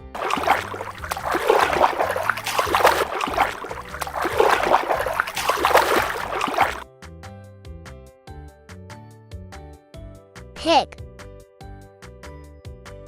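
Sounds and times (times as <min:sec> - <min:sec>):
water splashing and trickling: 0:00.0 - 0:06.8.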